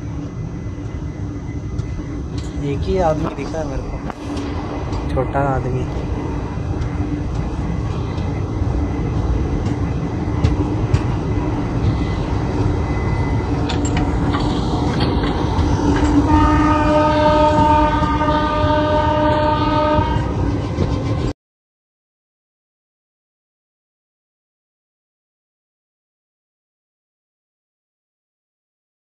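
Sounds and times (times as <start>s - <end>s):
train rumbling: 0.0s - 21.4s
train horn: 16.2s - 20.4s.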